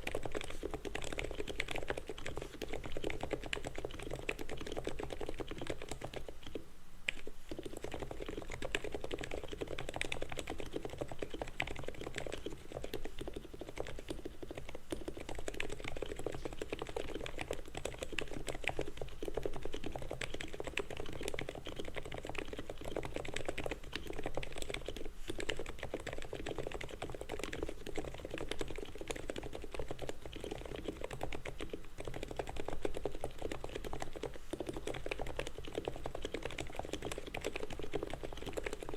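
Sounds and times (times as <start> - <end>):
fast mechanical keyboard typing: 0.0 - 38.9.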